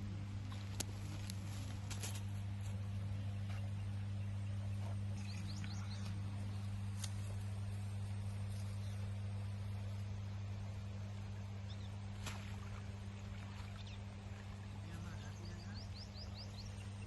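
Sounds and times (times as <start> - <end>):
steady low hum: 0.0 - 17.0
faint high bird chirps: 3.5 - 6.2, 15.0 - 17.0.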